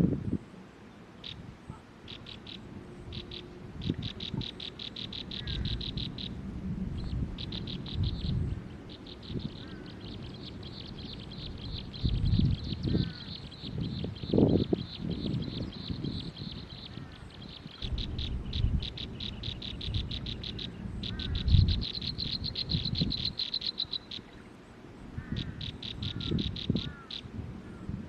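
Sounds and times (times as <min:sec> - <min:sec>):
nestling birds chirping: 0:00.9 - 0:27.9
low rumbling noise: 0:02.4 - 0:23.4.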